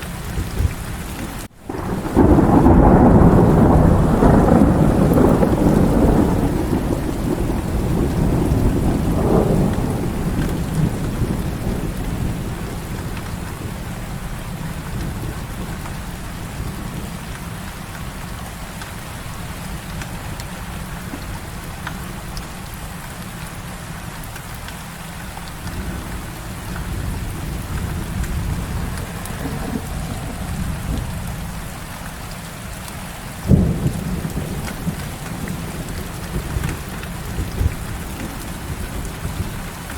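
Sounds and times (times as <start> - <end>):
thunder rumble: 0.0 - 22.6, 25.4 - 39.9
heavy rain: 0.0 - 39.9
thunder crack: 1.6 - 14.0, 25.6 - 32.0, 33.4 - 39.9.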